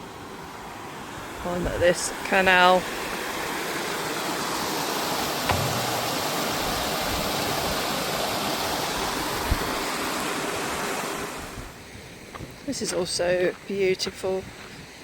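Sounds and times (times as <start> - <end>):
water rushing: 0.6 - 11.7
short low thump: 5.4 - 7.5.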